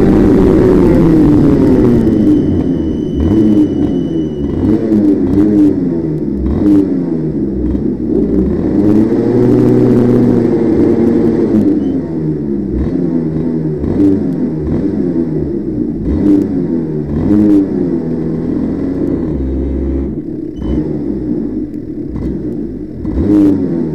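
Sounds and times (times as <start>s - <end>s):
vehicle engine revving: 0.0s - 23.9s.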